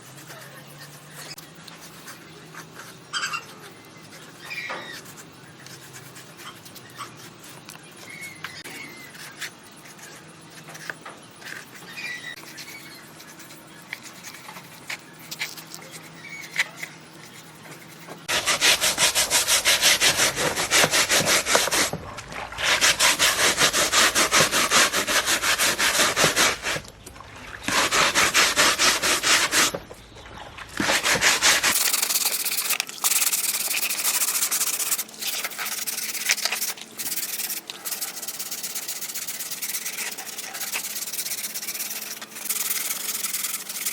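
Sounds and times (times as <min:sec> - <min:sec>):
power sander sanding: 0:18.3 - 0:26.8, 0:27.7 - 0:29.9, 0:30.8 - 0:31.8.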